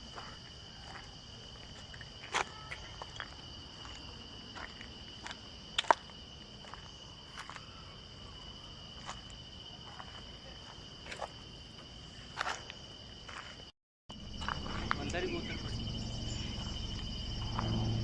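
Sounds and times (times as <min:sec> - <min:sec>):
insects trilling: 0:00.0 - 0:18.0
footsteps: 0:14.3 - 0:15.6.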